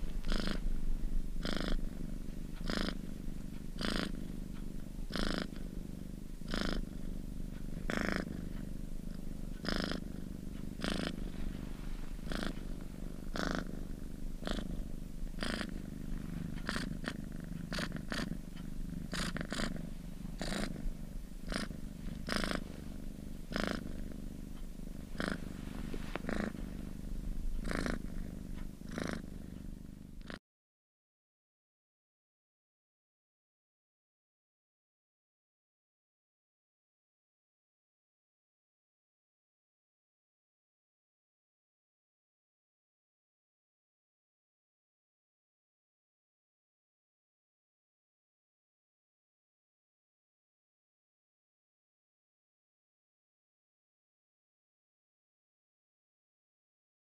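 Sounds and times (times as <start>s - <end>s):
cat purring: 0.0s - 30.4s.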